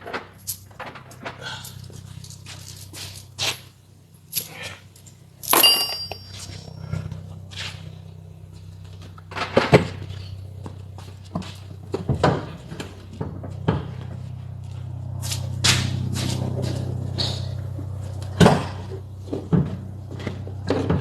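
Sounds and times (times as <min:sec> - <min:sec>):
steady low hum: 0:00.0 - 0:21.0
metallic clank: 0:04.3 - 0:07.6.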